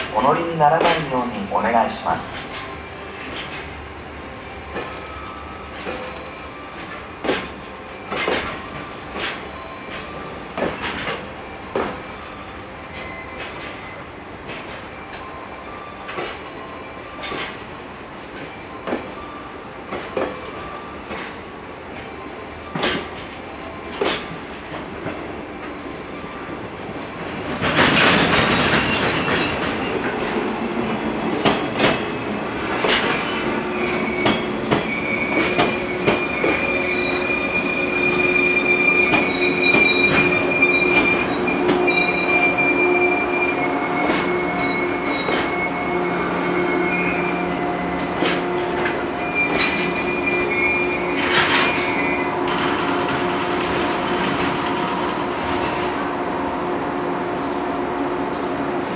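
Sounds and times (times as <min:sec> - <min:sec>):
train wheels clicking over rail joints: 0:04.6 - 0:12.1, 0:22.7 - 0:26.1, 0:27.2 - 0:56.0
high-pitched wheel squeal: 0:32.4 - 0:48.4.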